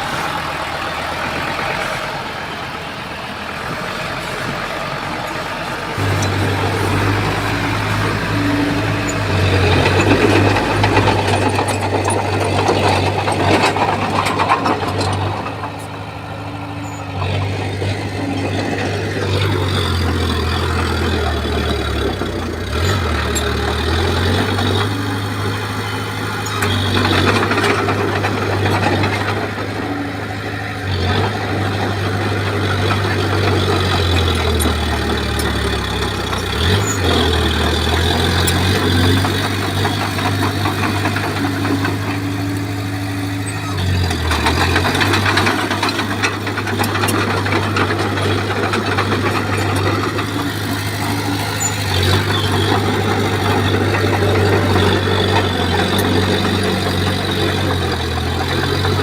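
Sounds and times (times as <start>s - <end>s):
bulldozer diesel engine: 0.0s - 59.0s
grinding and clattering: 0.0s - 59.0s.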